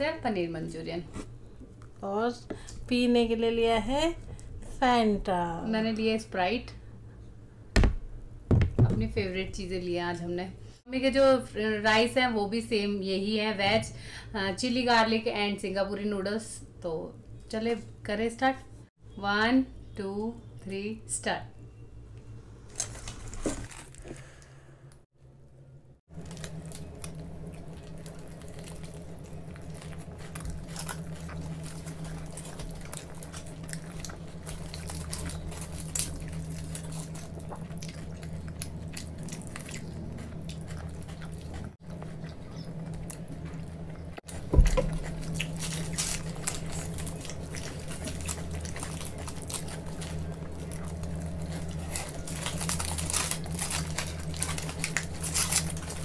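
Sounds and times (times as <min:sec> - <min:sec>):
steady low hum: 0:00.0 - 0:56.0
close chewing and mouth clicks: 0:26.1 - 0:56.0.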